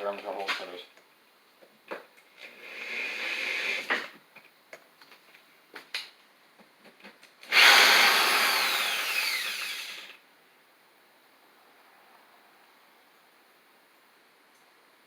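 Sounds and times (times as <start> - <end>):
drill clicks: 7.4 - 10.2
hammer drill whining: 7.5 - 10.2.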